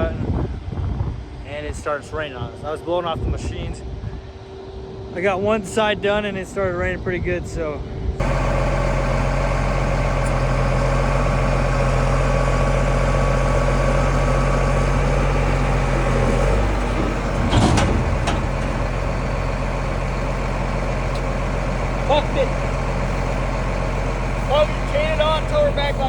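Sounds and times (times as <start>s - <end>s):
large engine idling: 8.2s - 26.0s
short clunks: 15.5s - 20.3s.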